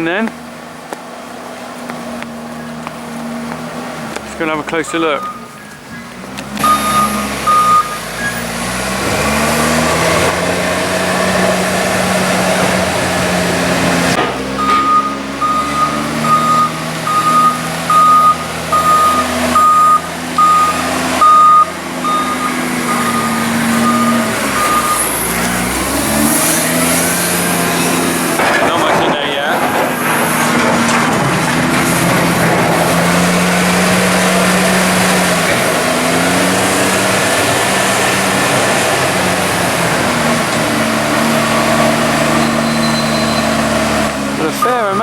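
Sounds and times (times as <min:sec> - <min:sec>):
diesel engine running: 0:00.0 - 0:45.0
reversing alarm beeping: 0:04.9 - 0:08.5, 0:14.6 - 0:26.1, 0:42.3 - 0:43.7, 0:44.5 - 0:45.0.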